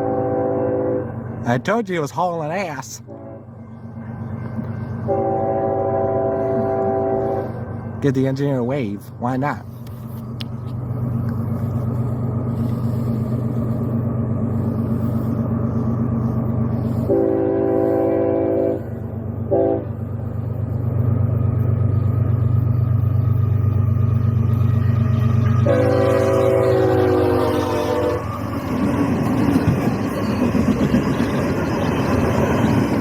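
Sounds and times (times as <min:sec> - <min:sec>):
locomotive air horn: 0:00.0 - 0:01.2, 0:03.1 - 0:03.5, 0:05.1 - 0:07.6, 0:16.9 - 0:20.0, 0:25.4 - 0:28.4
train rumbling: 0:00.0 - 0:33.0.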